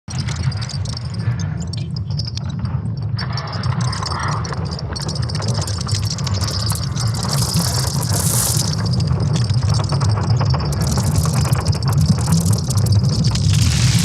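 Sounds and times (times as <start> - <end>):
dense crackling clicks: 0.1 - 14.0
deep rumble: 9.1 - 14.0.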